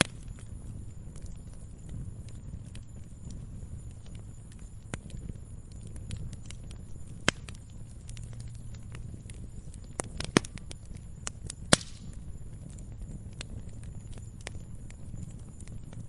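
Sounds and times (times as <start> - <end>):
log fire crackling: 0.0 - 16.0.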